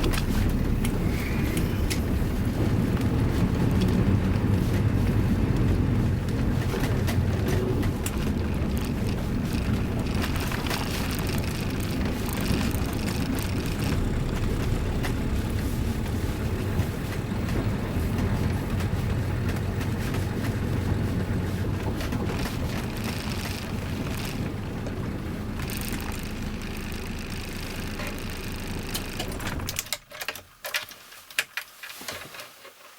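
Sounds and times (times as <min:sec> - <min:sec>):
diesel engine running: 0:00.0 - 0:30.0
engine clicks and knocks: 0:00.0 - 0:31.6.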